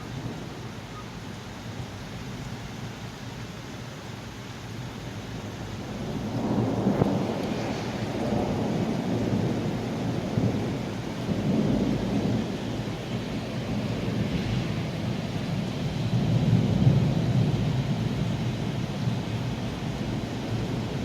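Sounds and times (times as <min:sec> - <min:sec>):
rain falling: 0:00.0 - 0:21.0
thunder rumbling: 0:05.6 - 0:21.0.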